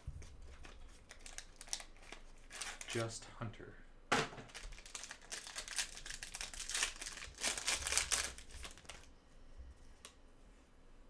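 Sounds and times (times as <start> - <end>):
plastic packaging crinkling: 0.2 - 3.1, 4.4 - 9.1.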